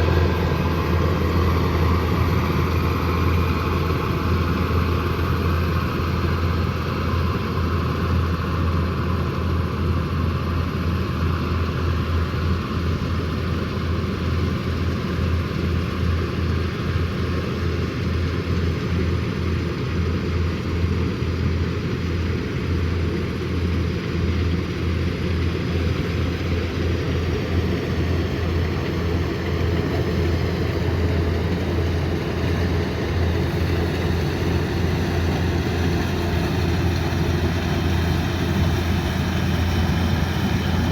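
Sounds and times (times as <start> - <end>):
combine harvester engine running: 0.0 - 40.9.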